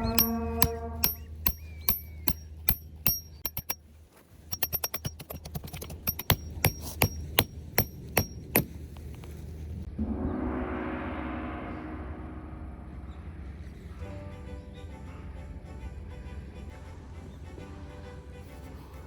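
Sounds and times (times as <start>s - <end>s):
ringing metallic knocks: 0.0s - 3.8s, 4.5s - 8.9s.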